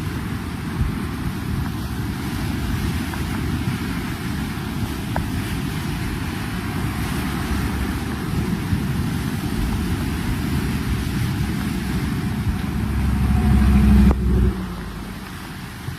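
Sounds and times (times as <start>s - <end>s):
dense rushing rumble: 0.0s - 15.9s
engine running: 6.0s - 15.9s.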